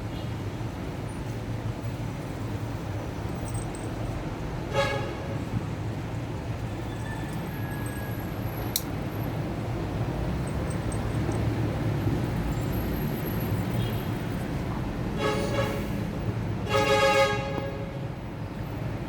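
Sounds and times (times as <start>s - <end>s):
road traffic rumble: 0.0s - 19.0s
sharp click: 8.7s - 9.0s.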